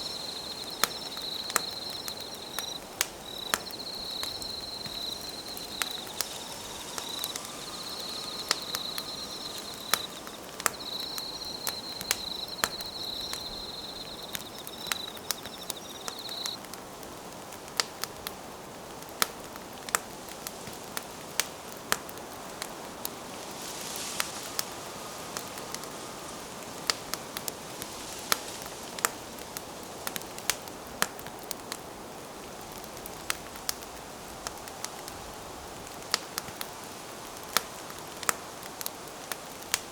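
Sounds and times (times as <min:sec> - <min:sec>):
insect trilling: 0:00.0 - 0:16.6
wood fire crackling and popping: 0:00.0 - 0:39.9.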